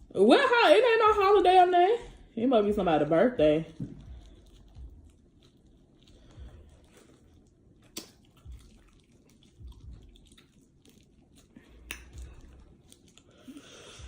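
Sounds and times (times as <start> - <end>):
soft low thumps: 1.0 - 5.2, 9.6 - 10.2
person chewing: 3.7 - 14.0.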